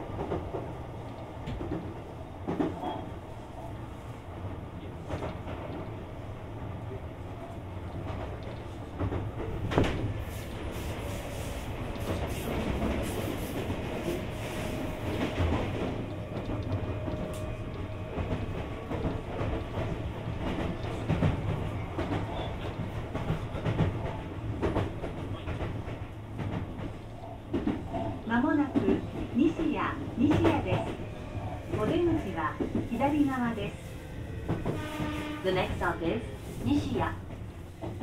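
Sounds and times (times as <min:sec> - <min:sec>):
train wheels rumbling on rail: 0:00.0 - 0:38.0
clacks over rail joints: 0:00.1 - 0:03.0, 0:11.8 - 0:33.8, 0:34.4 - 0:35.4, 0:36.8 - 0:38.0.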